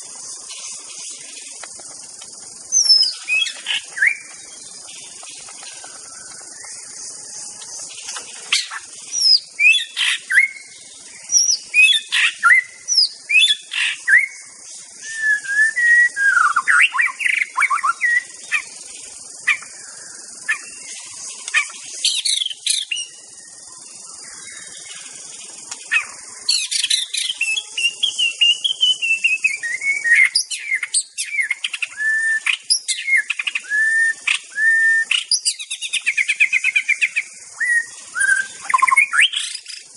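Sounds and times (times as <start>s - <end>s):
steady high hiss: 0.0s - 39.9s
bird singing whistled phrases: 8.6s - 10.7s, 15.0s - 18.3s, 26.8s - 39.8s.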